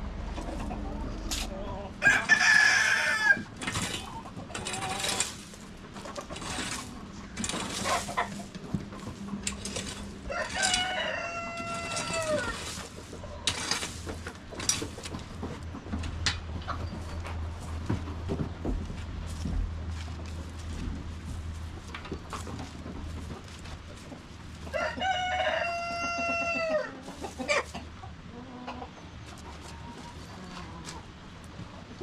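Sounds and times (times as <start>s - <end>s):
chickens clucking: 0.0s - 32.0s
rooster crowing: 1.7s - 3.6s, 10.0s - 12.8s, 24.7s - 27.0s.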